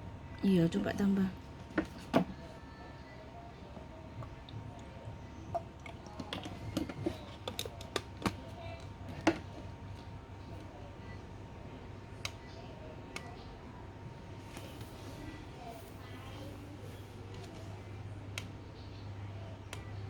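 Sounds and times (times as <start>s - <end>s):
plastic diffuser clicks and knocks: 1.7s - 2.4s, 5.5s - 9.6s.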